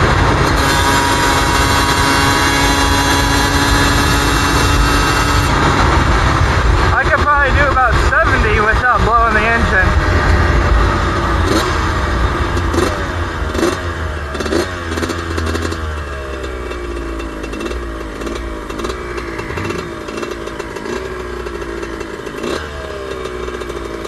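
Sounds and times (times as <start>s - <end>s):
wind rumble on microphone: 0.0s - 13.6s
motorcycle engine revving: 0.0s - 24.0s.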